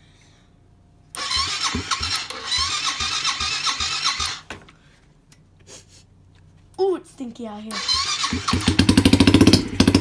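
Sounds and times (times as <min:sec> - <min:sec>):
dirt bike engine running loud: 0:08.1 - 0:10.0.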